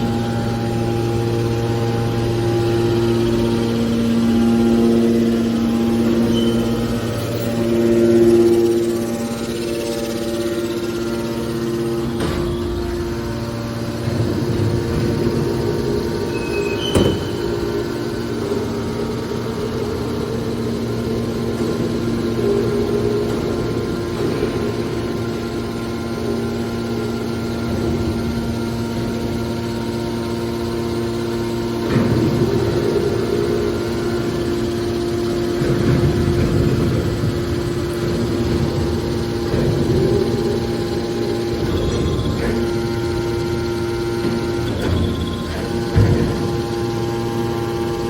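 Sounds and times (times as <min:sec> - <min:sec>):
motor and pump humming: 0:00.0 - 0:48.0.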